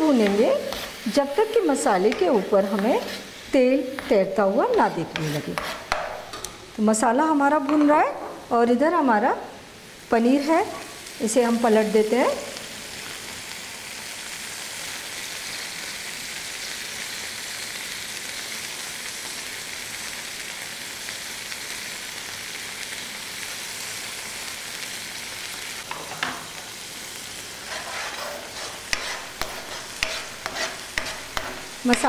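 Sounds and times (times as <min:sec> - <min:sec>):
spatula scraping pan: 0:00.0 - 0:06.4, 0:27.5 - 0:32.0
oil sizzling: 0:00.0 - 0:32.0.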